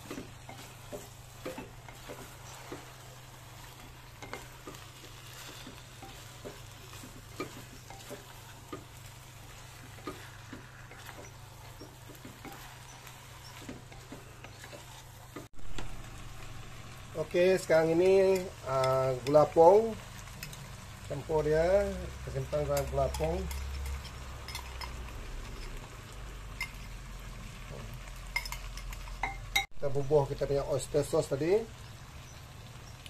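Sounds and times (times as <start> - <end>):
wooden spatula scraping pot: 0.0 - 15.9
meat sizzling in oil: 0.0 - 33.0.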